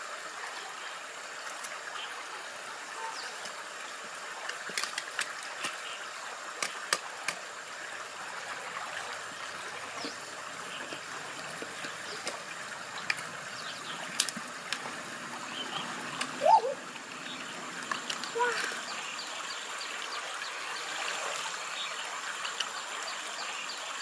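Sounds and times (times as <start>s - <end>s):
water trickling and running: 0.0s - 24.0s
light clicks and small splashes: 1.4s - 2.0s, 3.0s - 7.6s, 8.5s - 16.4s, 17.0s - 19.1s, 20.8s - 23.2s
rising and falling pitched call: 15.6s - 16.9s.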